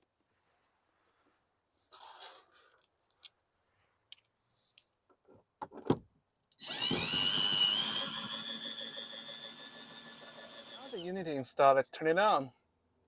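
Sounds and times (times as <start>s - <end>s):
power drill whining: 6.6s - 11.1s.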